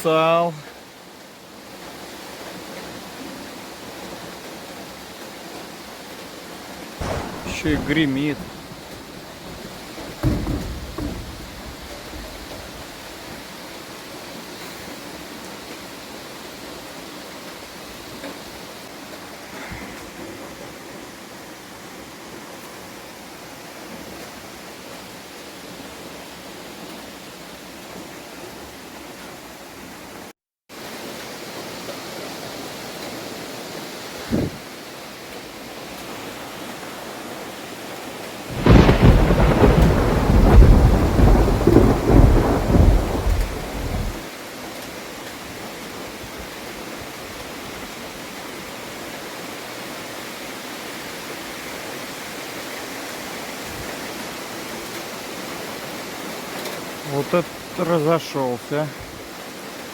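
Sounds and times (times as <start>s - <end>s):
heavy rain falling: 0.0s - 59.9s
short thump: 7.0s - 12.7s
thunderclap rumbling: 7.0s - 13.2s, 38.5s - 44.2s.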